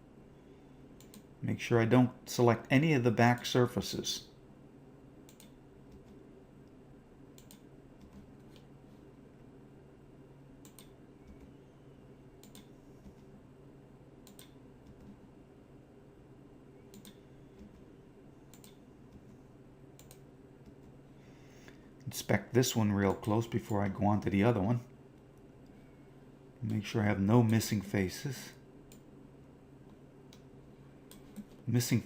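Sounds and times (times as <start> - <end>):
low steady hum: 0.0 - 32.0
computer mouse clicks: 1.0 - 1.3, 5.3 - 6.2, 7.4 - 8.7, 10.6 - 11.5, 12.4 - 13.3, 14.2 - 15.2, 16.9 - 17.9, 18.5 - 19.3, 20.0 - 20.9.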